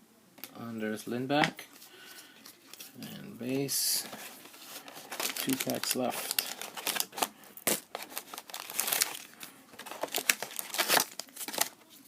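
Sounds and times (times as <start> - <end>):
card pack wrappers crinkling and tearing: 3.9 - 12.0.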